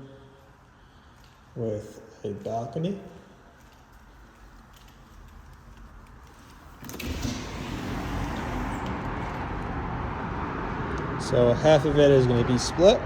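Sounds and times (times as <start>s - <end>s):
street traffic: 3.4s - 13.0s
balcony door opening click: 6.8s - 9.8s.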